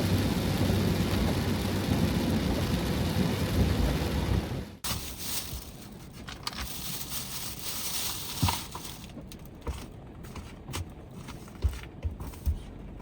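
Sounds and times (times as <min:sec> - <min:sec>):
rain hiss: 0:00.0 - 0:05.8, 0:06.7 - 0:09.2.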